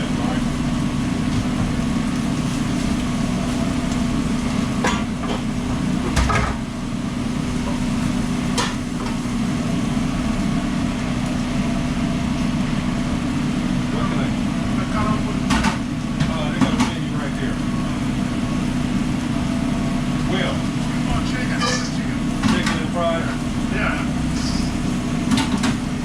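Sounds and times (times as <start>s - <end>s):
mechanical equipment hum: 0.0s - 26.0s
kitchen utensils and pans clanking: 21.4s - 22.9s.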